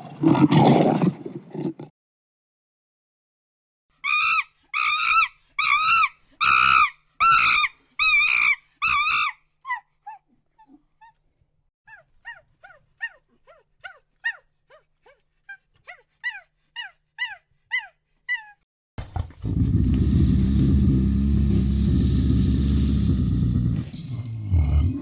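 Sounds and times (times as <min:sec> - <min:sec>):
animal high-pitched calls: 0:04.0 - 0:09.8.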